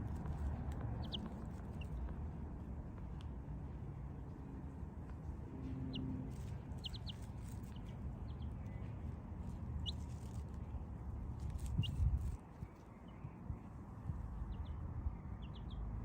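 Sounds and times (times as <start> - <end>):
duckling peeping: 0.9 - 2.0, 5.9 - 8.8, 9.8 - 10.4, 11.4 - 12.4.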